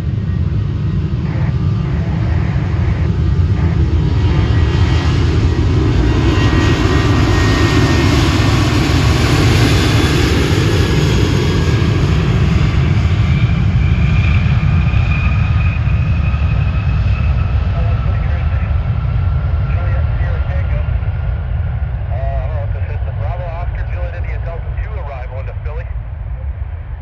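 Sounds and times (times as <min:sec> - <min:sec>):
high engine whine: 0:00.0 - 0:27.0
jet engines rushing past: 0:00.0 - 0:27.0.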